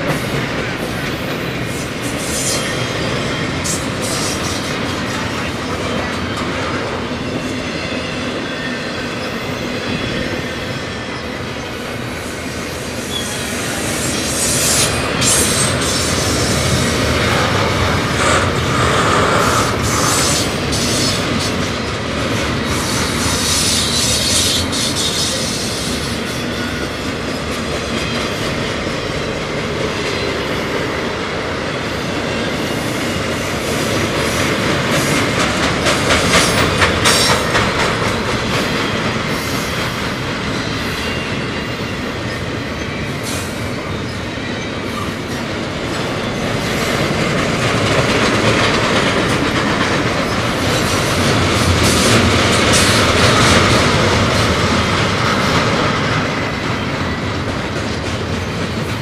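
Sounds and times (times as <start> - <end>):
train wheel squeal: 0.0 - 59.0
train wheels rumbling and rattling: 0.0 - 59.0
wheels clicking over rail joints: 45.8 - 59.0.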